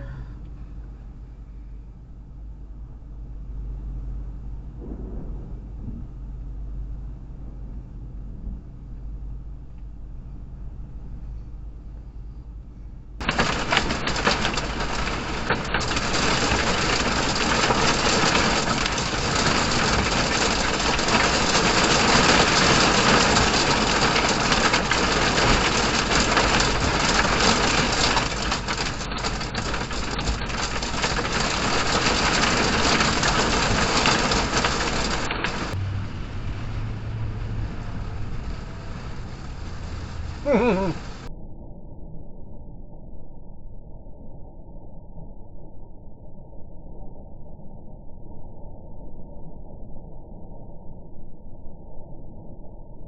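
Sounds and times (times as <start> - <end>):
heavy rain pounding: 4.7 - 9.6, 13.2 - 41.3.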